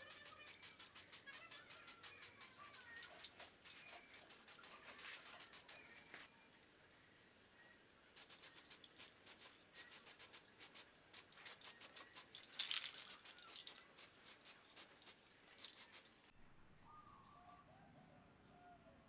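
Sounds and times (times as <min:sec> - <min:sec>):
hand scraping strokes: 0:00.0 - 0:06.3, 0:08.2 - 0:16.2
faint bird chirps: 0:00.0 - 0:06.6, 0:16.7 - 0:19.0.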